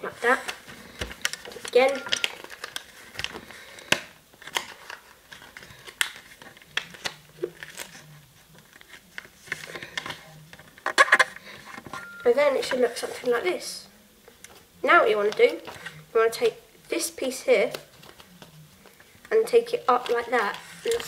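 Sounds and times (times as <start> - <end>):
paper rustling and crinkling: 0.2 - 11.9, 17.7 - 19.1, 19.9 - 21.0.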